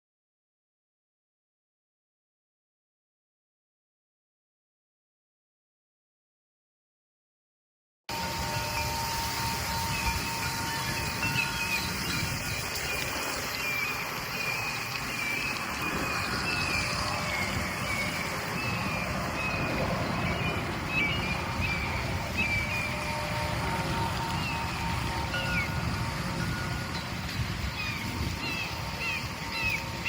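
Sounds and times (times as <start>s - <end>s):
low gusty rumble: 8.1s - 30.0s
steady rushing noise: 8.1s - 30.0s.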